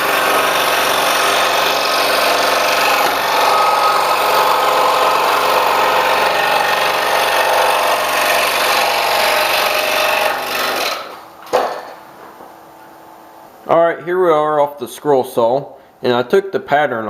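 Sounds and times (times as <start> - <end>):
scroll saw cutting wood: 0.0 - 11.3.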